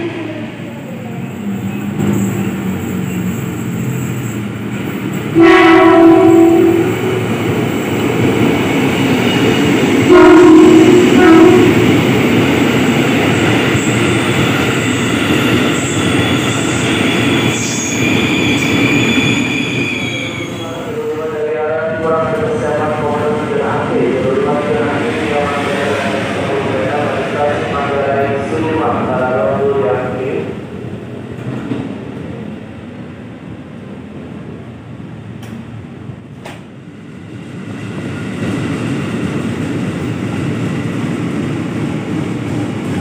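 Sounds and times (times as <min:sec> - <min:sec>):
electric train rumbling: 0:00.0 - 0:43.0
train horn blasts: 0:05.3 - 0:07.3, 0:10.1 - 0:11.8
high squeal: 0:15.6 - 0:20.9.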